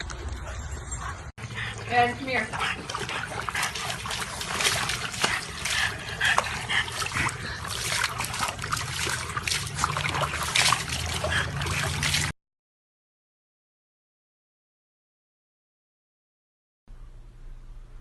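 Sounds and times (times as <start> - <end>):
water splashing and trickling: 0.0 - 12.4.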